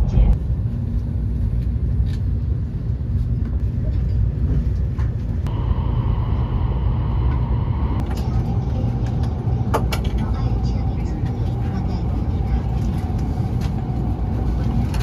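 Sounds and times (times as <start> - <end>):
train running low rumble: 0.0 - 15.0
steady high whine: 5.5 - 15.0.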